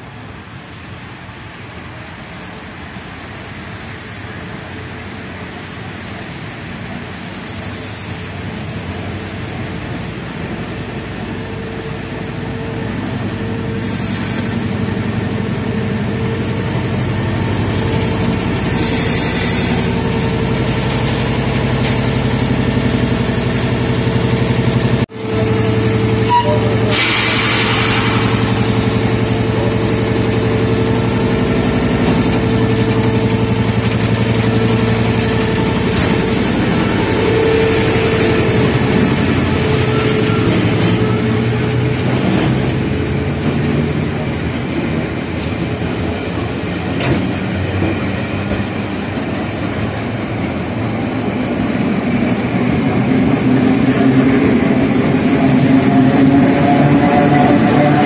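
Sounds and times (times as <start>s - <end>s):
train engine drone: 0.0s - 58.0s.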